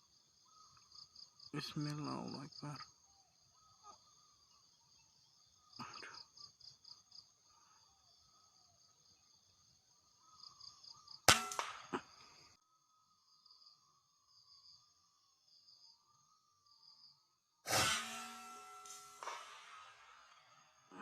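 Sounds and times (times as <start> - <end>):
crickets and insects buzzing: 0.0 - 21.0
air rifle shot: 11.3 - 12.1, 17.7 - 20.4.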